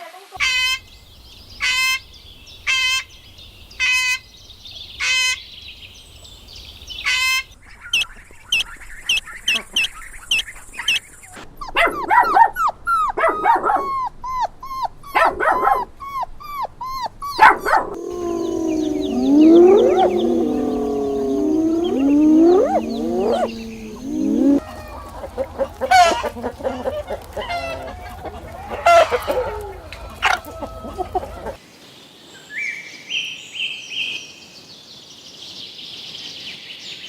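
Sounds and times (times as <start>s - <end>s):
dog yipping and whimpering: 11.6s - 24.6s.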